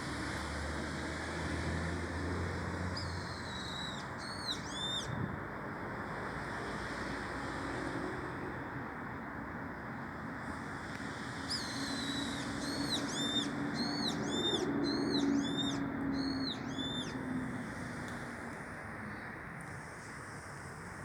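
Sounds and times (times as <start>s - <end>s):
bird calling: 11.5s - 17.2s.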